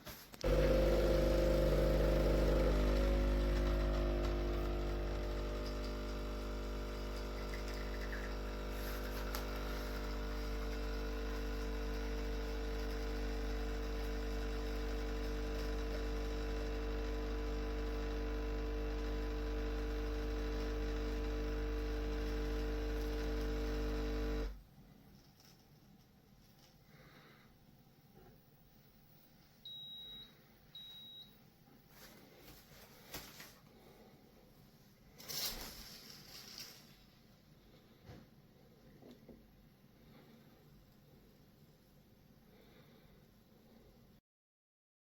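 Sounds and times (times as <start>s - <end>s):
espresso machine pump humming: 0.4s - 24.6s.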